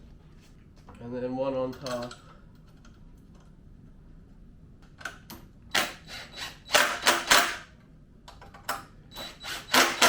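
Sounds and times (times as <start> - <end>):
parts clicking and knocking: 8.2 - 8.9.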